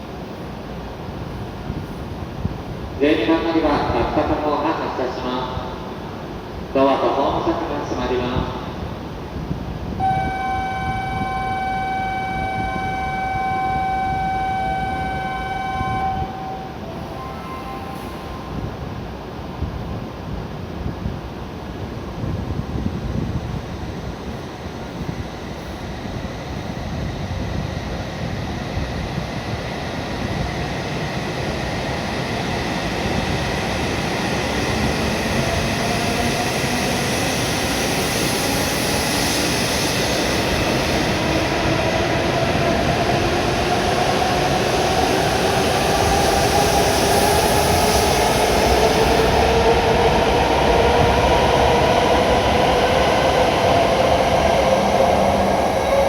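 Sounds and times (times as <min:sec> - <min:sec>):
train running on rails: 0:00.0 - 0:56.0
train motor whine: 0:10.0 - 0:18.6.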